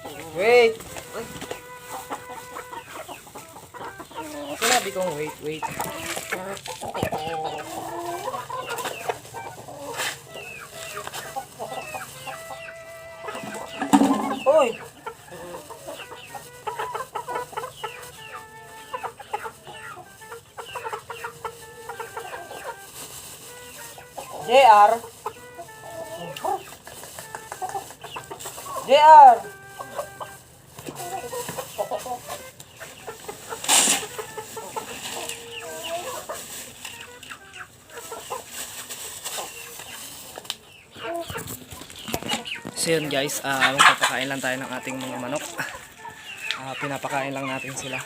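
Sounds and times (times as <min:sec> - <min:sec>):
chickens clucking and calling: 0:00.0 - 0:48.0
loud rustle: 0:21.5 - 0:24.3, 0:29.5 - 0:37.3, 0:37.9 - 0:40.6.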